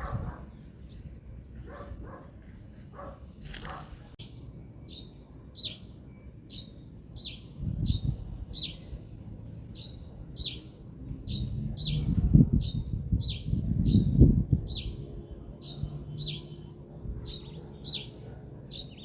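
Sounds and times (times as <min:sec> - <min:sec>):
wind rumbling on microphone: 0:00.0 - 0:04.2, 0:07.2 - 0:17.5.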